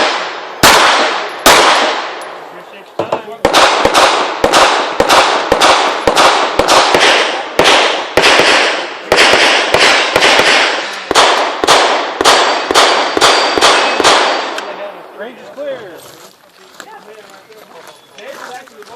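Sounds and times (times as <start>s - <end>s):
pistol shots with ringing echo: 0.0s - 14.9s.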